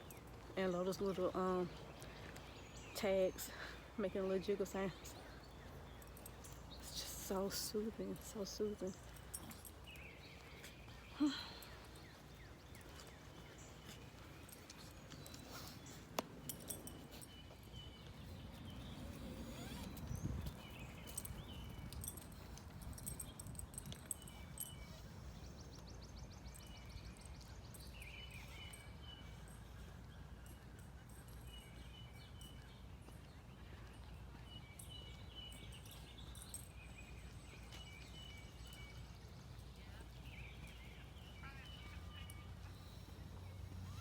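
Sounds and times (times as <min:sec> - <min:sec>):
birds chirping: 0:00.0 - 0:44.0
dog collar tags jingling: 0:05.7 - 0:25.7, 0:26.5 - 0:39.8.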